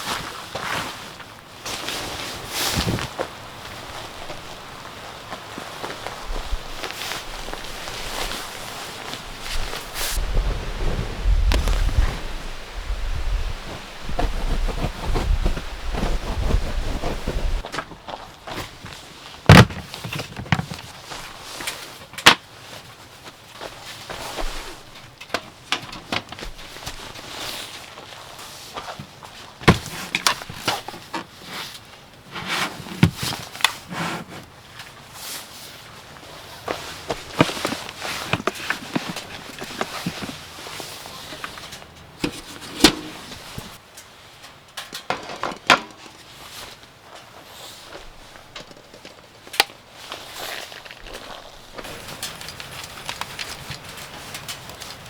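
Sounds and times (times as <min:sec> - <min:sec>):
rustling: 0:00.0 - 0:44.3, 0:45.1 - 0:55.0.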